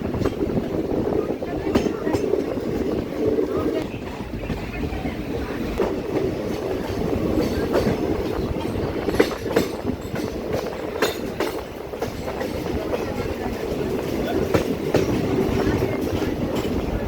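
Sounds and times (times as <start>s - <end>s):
train wheels clacking: 0.0s - 17.0s.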